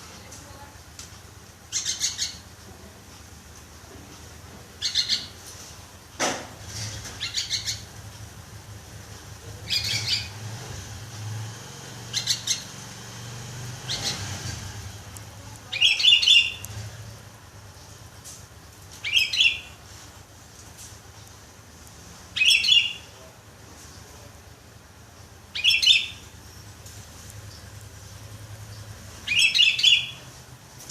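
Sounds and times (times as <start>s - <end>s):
bird chirping: 1.7s - 2.5s, 4.8s - 5.5s, 7.0s - 8.0s, 9.6s - 10.5s, 11.8s - 14.8s, 15.6s - 17.3s, 18.9s - 19.8s, 22.4s - 23.3s, 25.5s - 30.4s.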